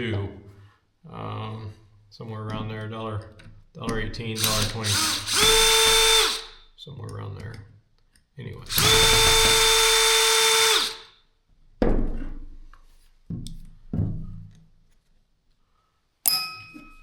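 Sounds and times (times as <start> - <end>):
power drill motor running: 4.4 - 6.6, 8.7 - 11.1.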